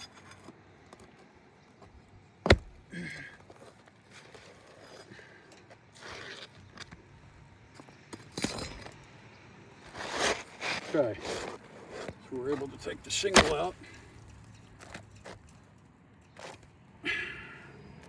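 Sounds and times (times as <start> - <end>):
scraping and rustling: 9.8 - 12.7.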